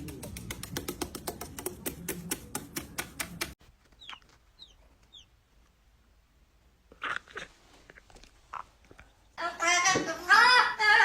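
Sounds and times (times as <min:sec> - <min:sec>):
rapid even tapping: 0:00.0 - 0:03.6
bird chirping: 0:03.9 - 0:05.4.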